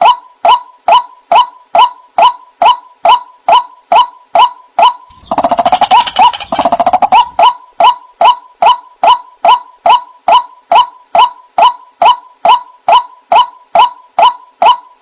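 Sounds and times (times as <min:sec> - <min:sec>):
fast chattering bird notes: 0:05.1 - 0:07.5
waterhen calling: 0:05.1 - 0:07.6.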